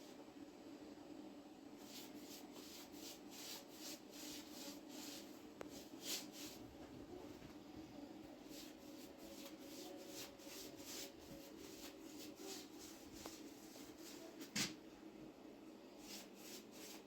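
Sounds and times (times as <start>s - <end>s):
faint rubbing strokes: 1.8s - 6.7s, 8.4s - 14.5s, 16.0s - 17.0s.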